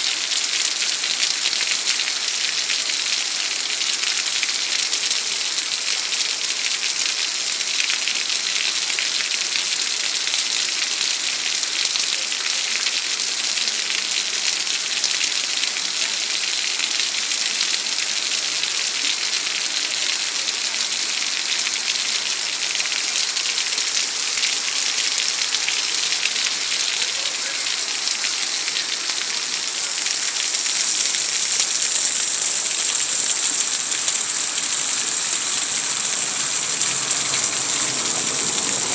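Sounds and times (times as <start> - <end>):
heavy rain falling: 20.9 - 38.9.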